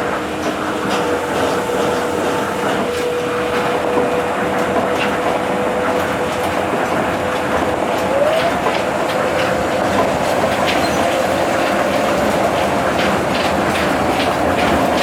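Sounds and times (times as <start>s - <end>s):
train motor whine: 0.0s - 15.0s
train running rumble: 0.0s - 15.0s.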